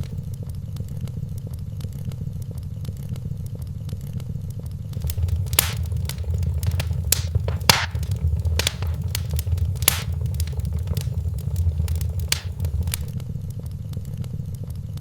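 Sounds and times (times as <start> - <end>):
wood fire crackling: 5.0 - 13.1.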